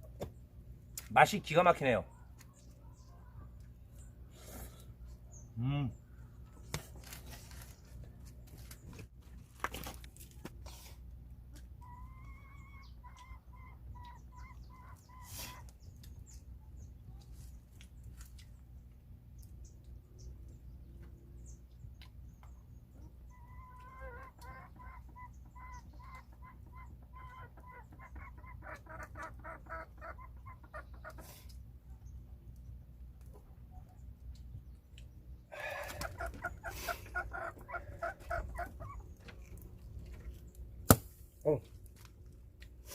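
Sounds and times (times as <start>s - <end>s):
chicken clucking: 11.5s - 15.8s, 22.4s - 31.6s, 35.6s - 39.6s.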